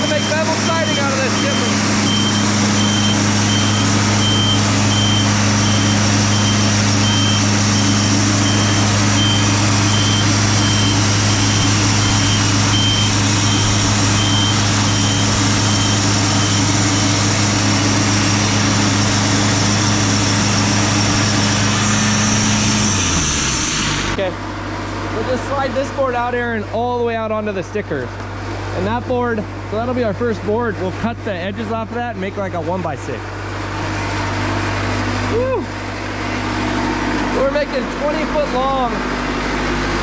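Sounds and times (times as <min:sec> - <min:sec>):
short high beeps: 0:00.0 - 0:17.1
bandsaw mill sawing log: 0:00.0 - 0:24.3
engine humming: 0:00.0 - 0:40.0.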